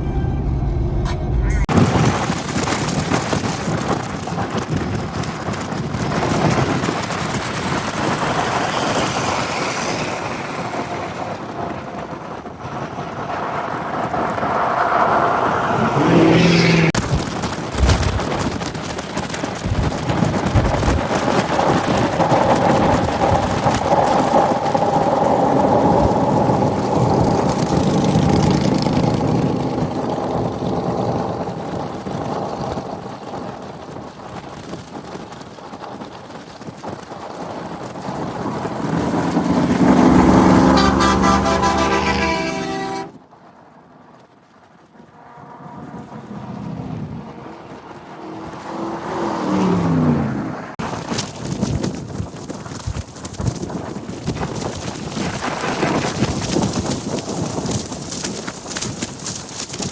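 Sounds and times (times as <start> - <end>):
moving truck road noise: 0.0 - 59.9.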